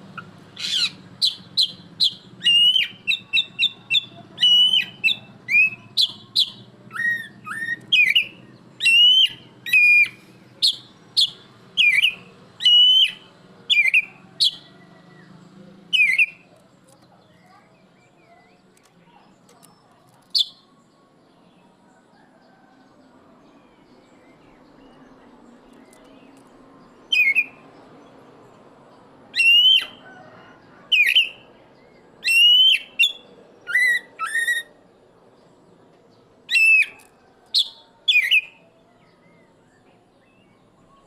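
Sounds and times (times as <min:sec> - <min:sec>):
bird singing whistled notes: 0:00.6 - 0:15.0, 0:15.9 - 0:16.5, 0:27.0 - 0:27.7, 0:29.3 - 0:30.0, 0:32.2 - 0:34.8, 0:36.5 - 0:41.0.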